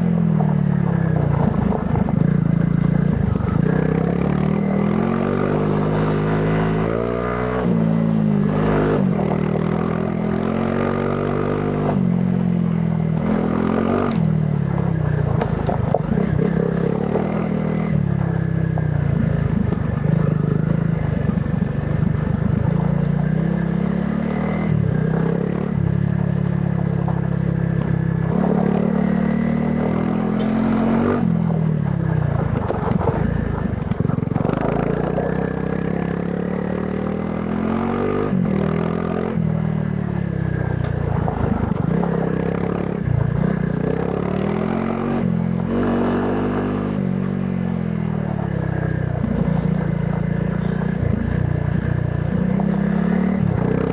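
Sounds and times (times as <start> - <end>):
motorcycle engine revving: 0.0 - 53.9
motorcycle clattering over rough ground: 0.3 - 4.7, 14.1 - 17.2, 18.0 - 23.3, 26.2 - 28.7, 31.8 - 35.4, 40.6 - 44.1.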